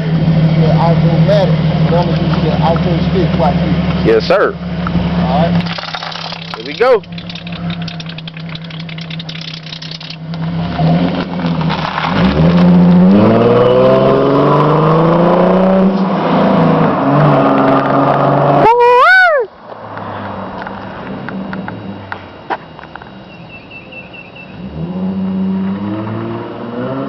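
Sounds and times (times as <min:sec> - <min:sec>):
car engine accelerating: 0:00.0 - 0:18.7, 0:24.2 - 0:27.0.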